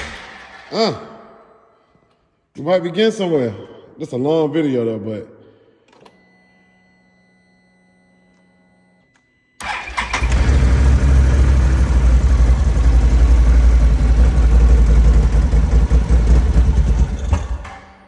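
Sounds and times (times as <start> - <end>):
atv engine cranking and running: 9.6 - 17.7.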